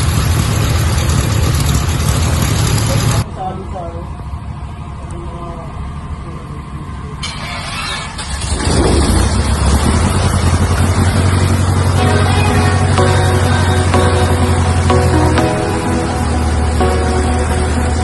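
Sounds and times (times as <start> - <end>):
light aircraft engine and propeller drone: 0.0 - 3.3.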